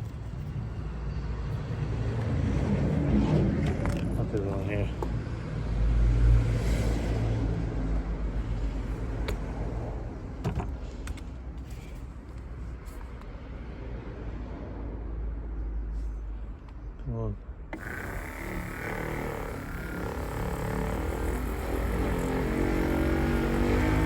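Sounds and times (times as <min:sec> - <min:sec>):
electric polisher motor hum: 0:17.8 - 0:24.0.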